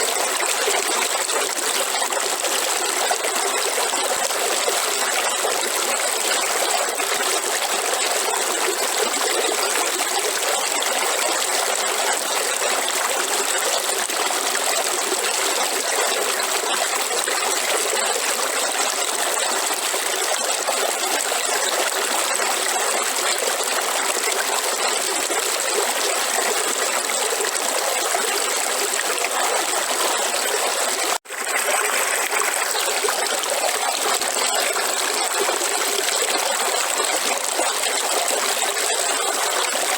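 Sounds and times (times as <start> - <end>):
river water running over stones: 0.0 - 39.9.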